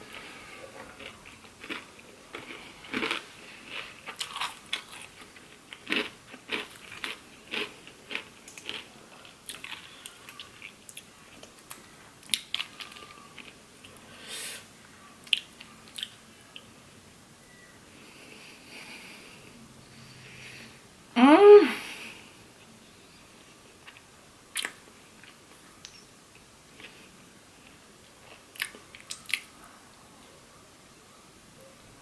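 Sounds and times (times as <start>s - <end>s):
chewing food: 0.0s - 14.1s, 15.0s - 16.8s, 23.8s - 26.0s, 26.7s - 29.7s.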